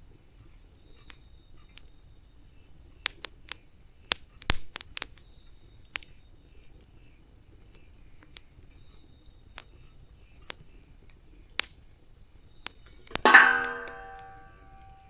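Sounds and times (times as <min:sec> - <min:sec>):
campfire wood popping: 0:00.0 - 0:15.0
loud hollow ringing knock: 0:13.2 - 0:15.0.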